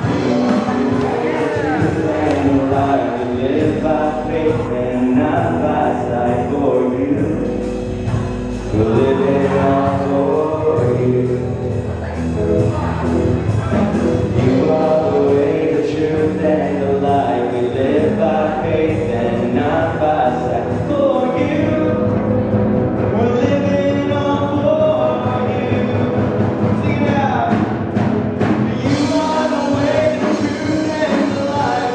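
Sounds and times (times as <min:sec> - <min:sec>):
many voices singing together: 0:00.0 - 0:06.9, 0:08.7 - 0:11.4, 0:28.8 - 0:31.9
band playing upbeat song: 0:00.0 - 0:31.9.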